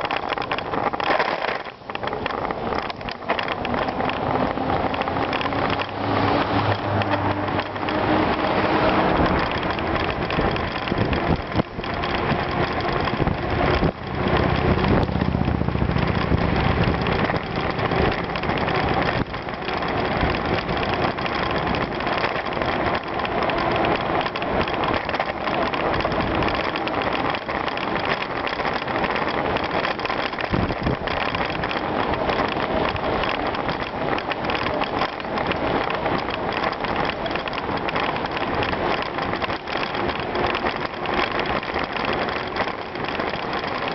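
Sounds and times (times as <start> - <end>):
bicycle tyres rolling on gravel: 0.0 - 43.9
low rumble: 2.4 - 27.2.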